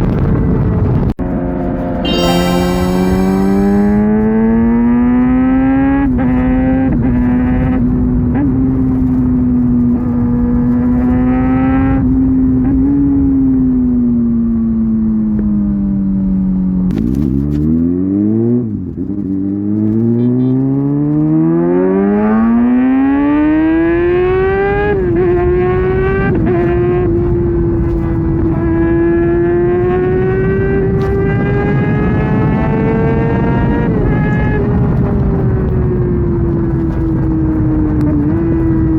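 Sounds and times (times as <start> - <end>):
motorcycle engine revving: 1.8 - 7.7.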